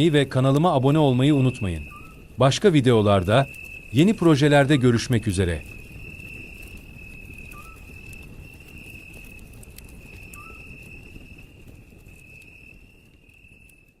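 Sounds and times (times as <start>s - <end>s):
faint chirps: 0.0s - 9.2s, 10.0s - 11.5s
cricket trilling: 0.0s - 13.9s.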